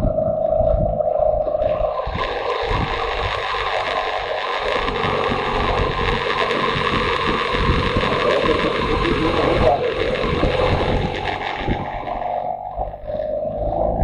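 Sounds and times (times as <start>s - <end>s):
wind rushing over microphone: 0.0s - 14.0s
motorcycle engine running: 1.6s - 14.0s.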